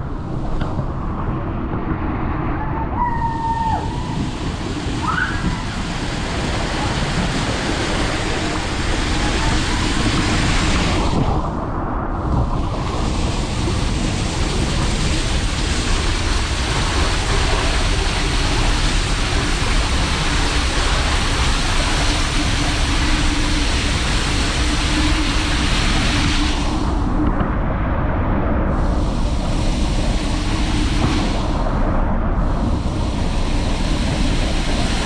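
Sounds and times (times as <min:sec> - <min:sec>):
wind buffeting microphone: 0:00.0 - 0:35.0
water rushing: 0:03.1 - 0:27.3, 0:28.7 - 0:35.0.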